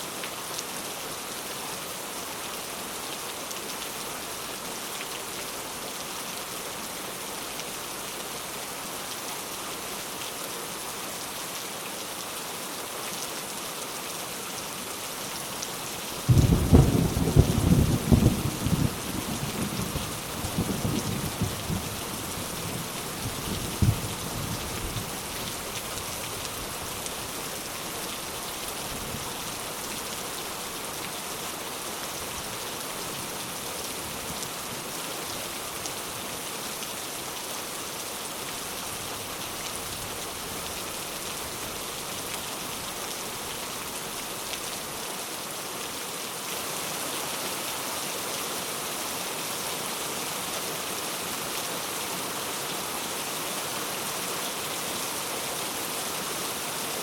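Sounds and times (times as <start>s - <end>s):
rain pattering: 14.6s - 45.0s.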